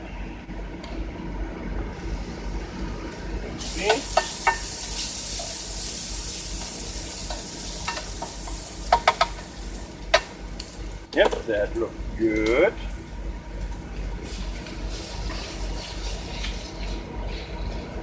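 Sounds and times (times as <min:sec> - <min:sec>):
egg sizzling in a pan: 0:02.0 - 0:11.1, 0:12.8 - 0:18.0
utensil knocking against pan: 0:07.3 - 0:09.4.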